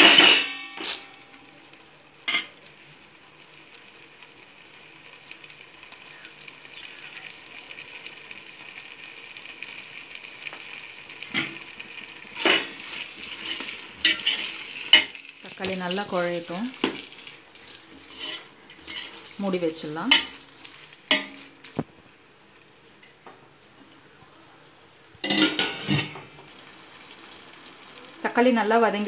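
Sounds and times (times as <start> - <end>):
vegetables sizzling in a pot: 0.0 - 29.0
metal spoon scraping a pot: 12.4 - 15.2, 16.1 - 19.4.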